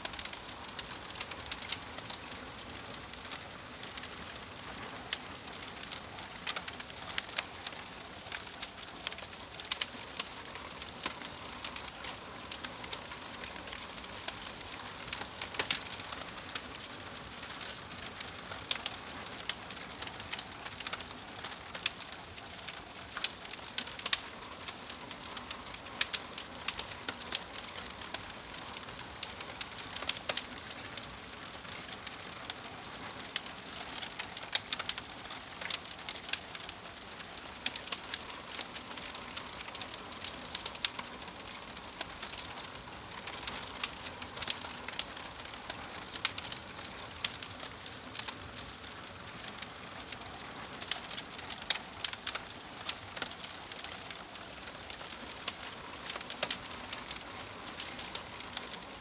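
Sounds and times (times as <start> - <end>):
fire crackling: 0.0 - 59.0.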